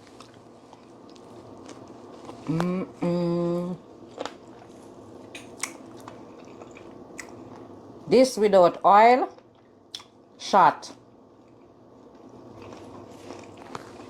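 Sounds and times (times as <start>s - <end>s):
person humming mmm: 2.4s - 3.8s
person chewing chicken wings: 4.1s - 7.7s, 12.5s - 14.0s.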